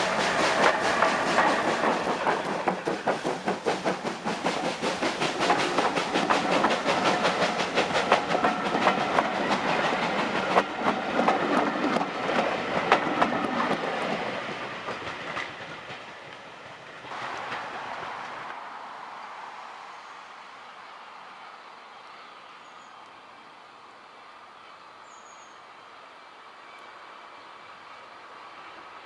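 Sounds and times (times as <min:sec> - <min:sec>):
train wheels clicking over rail joints: 0:00.0 - 0:18.5.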